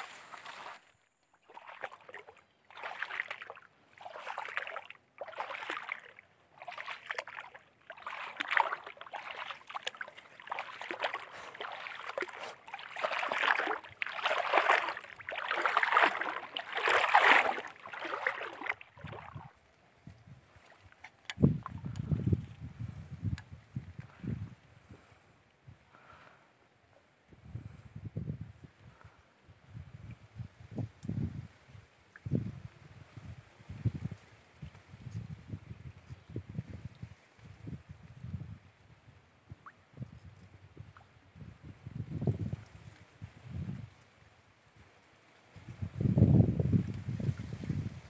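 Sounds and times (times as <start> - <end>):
wading through water: 0.0 - 22.6.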